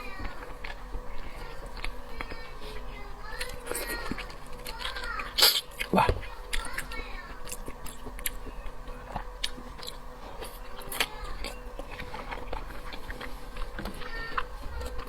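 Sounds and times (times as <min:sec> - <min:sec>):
person chewing with wet mouth clicks: 0:06.5 - 0:15.0.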